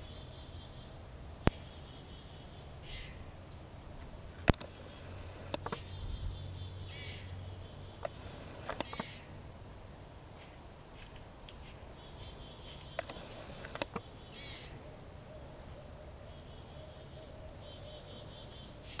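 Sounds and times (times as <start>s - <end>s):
birds singing in trills: 0.0s - 9.4s, 10.4s - 19.0s
sharp clicks: 4.4s - 4.8s, 5.4s - 5.9s, 8.0s - 9.2s, 12.8s - 14.1s.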